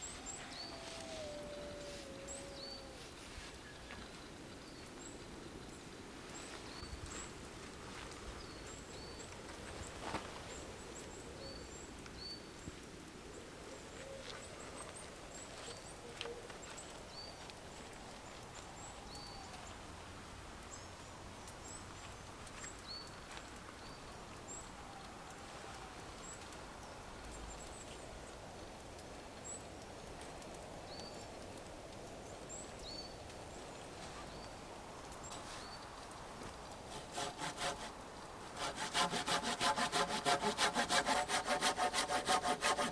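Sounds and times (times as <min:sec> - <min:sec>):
small birds chirping: 0:00.0 - 0:03.0.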